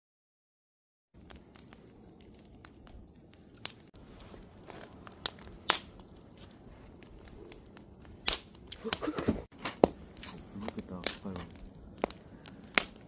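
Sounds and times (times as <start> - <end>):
campfire crackling and popping: 1.2 - 13.0.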